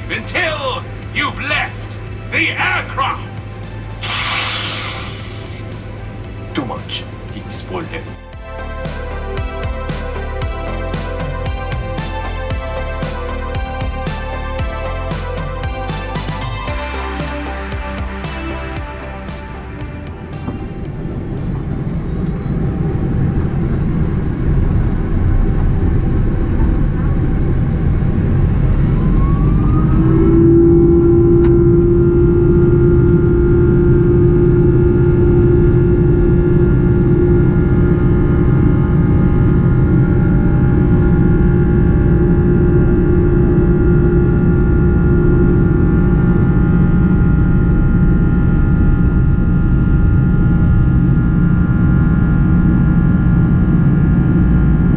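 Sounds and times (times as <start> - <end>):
jet engines spooling up: 0.0 - 54.9.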